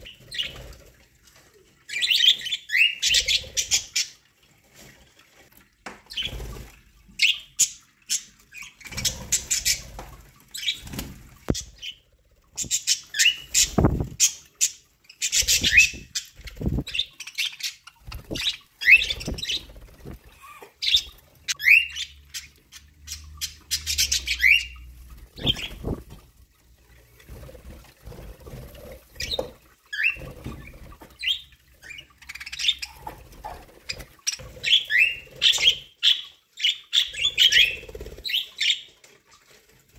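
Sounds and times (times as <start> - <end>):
wing flutters: 8.8 - 14.4, 15.2 - 17.2, 17.8 - 21.6, 23.9 - 35.8
budgerigars chirping: 20.8 - 24.8.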